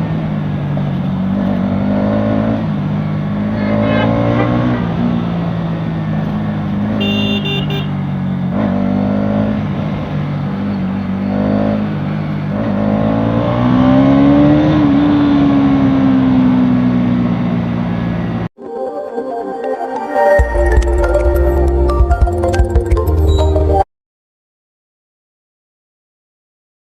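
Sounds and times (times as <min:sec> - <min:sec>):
motorcycle engine accelerating: 0:00.0 - 0:18.5
short high beep: 0:03.6 - 0:05.0.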